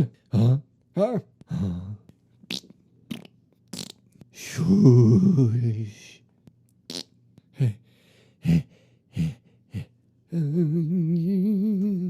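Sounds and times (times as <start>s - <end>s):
man humming: 0.0s - 2.1s, 4.4s - 6.2s, 7.5s - 7.8s, 8.4s - 12.0s.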